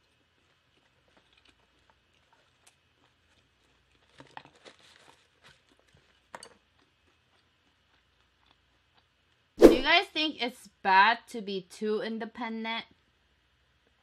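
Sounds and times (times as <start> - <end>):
faint chewing: 0.0 - 9.5.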